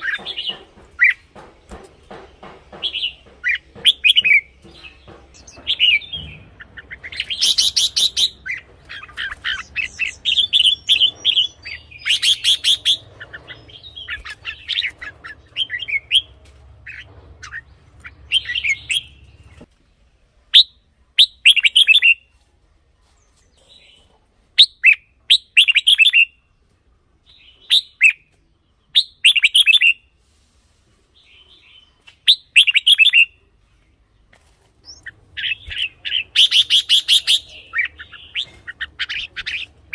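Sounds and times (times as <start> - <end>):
bird whistled song phrases: 20.5 - 22.2, 24.6 - 26.4, 27.3 - 28.3, 28.9 - 30.0, 31.6 - 33.4, 34.8 - 39.7.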